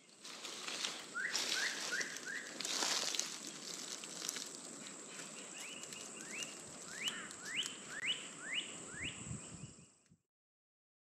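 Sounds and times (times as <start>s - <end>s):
bird whistling upslurred calls: 1.1s - 2.6s, 5.6s - 9.8s.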